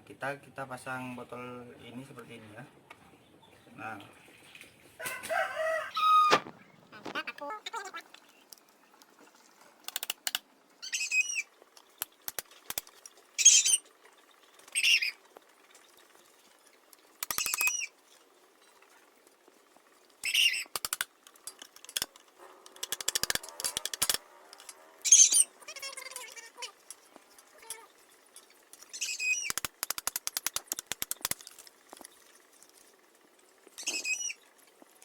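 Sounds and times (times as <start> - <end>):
sharp clicks: 9.8 - 10.5, 11.8 - 13.2, 17.2 - 17.8, 20.5 - 24.8, 28.7 - 32.2
plastic bottle scraping and squeaking: 17.3 - 17.9, 28.7 - 29.6, 33.7 - 34.5.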